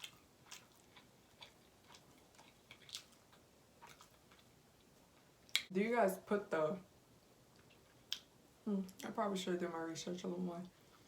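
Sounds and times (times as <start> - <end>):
mouth chewing food: 0.0 - 4.9.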